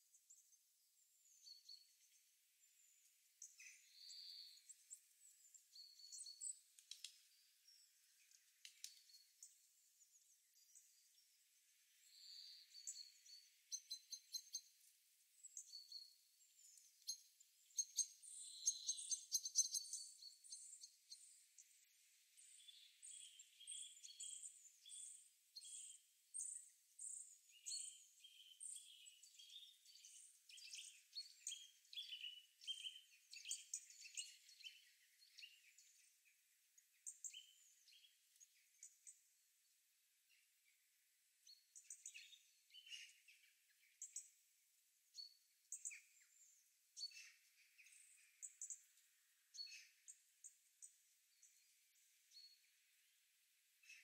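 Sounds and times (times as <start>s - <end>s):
small songbirds chirping: 0.0s - 54.0s.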